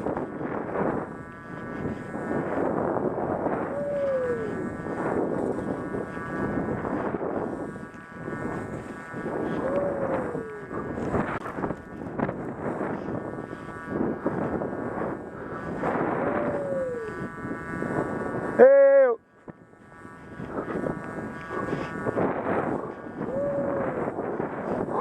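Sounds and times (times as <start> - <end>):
wind on microphone: 0.0 - 25.0
high-pitched whine: 3.6 - 5.7, 9.4 - 11.5, 15.0 - 17.9, 22.8 - 24.1.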